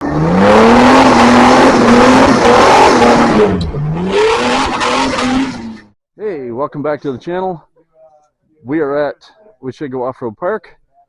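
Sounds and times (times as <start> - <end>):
off-road engine revving hard: 0.0 - 6.0.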